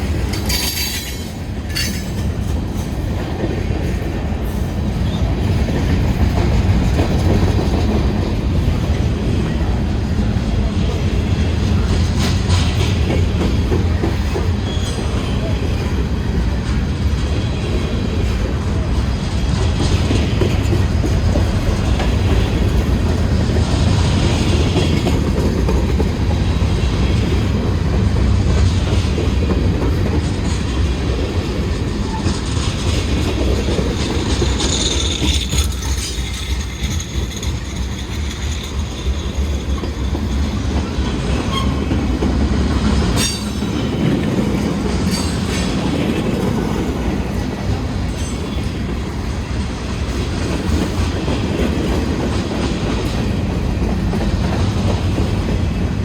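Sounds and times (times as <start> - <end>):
freight train rolling past: 0.0 - 56.0
sharp clanks: 0.3 - 2.4
wheel squeal: 14.6 - 15.5, 41.3 - 41.9.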